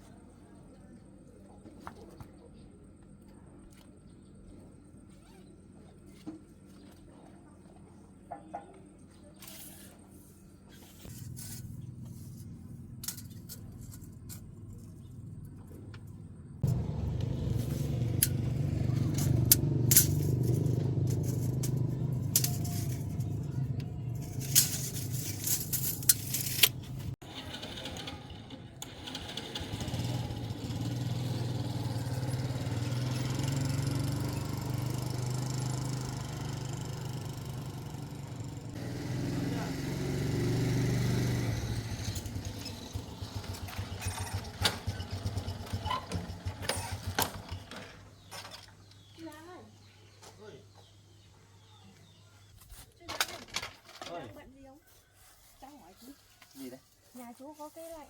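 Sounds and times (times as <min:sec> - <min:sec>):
rattles and sharp clicks: 0:11.1 - 0:31.3, 0:42.1 - 0:48.9
vehicle engine running: 0:11.1 - 0:48.3.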